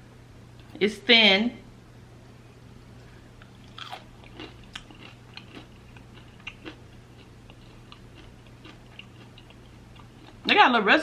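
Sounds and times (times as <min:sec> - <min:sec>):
chicken wing crunching: 0:03.4 - 0:10.5.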